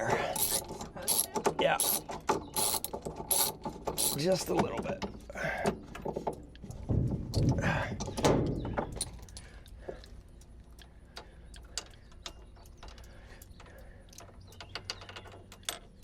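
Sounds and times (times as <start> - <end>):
metallic clicks of hand tools: 0.3 - 4.3.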